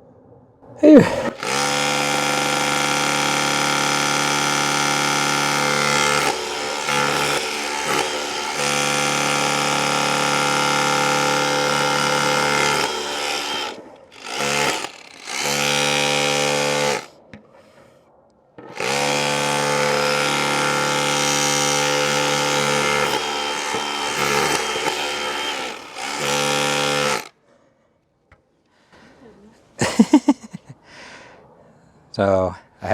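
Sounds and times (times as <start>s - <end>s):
rotary hammer chiselling a wall: 1.0s - 17.5s, 18.6s - 27.3s.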